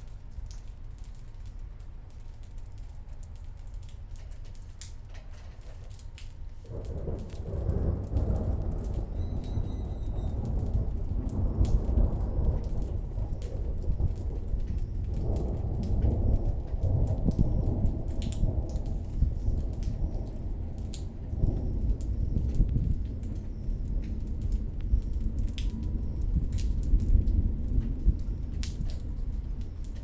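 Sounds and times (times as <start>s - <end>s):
steady rain: 0.0s - 30.0s
thunder rolling: 6.4s - 30.0s.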